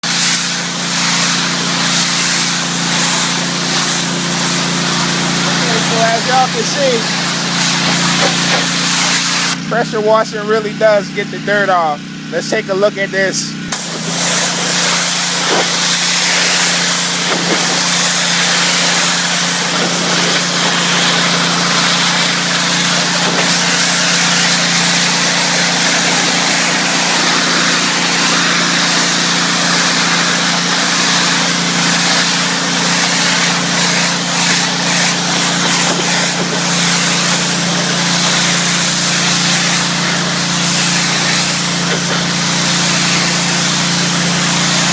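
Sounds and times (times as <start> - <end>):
water spray hissing on siding: 0.0 - 9.8, 13.7 - 44.9
pressure washer humming: 0.0 - 44.9.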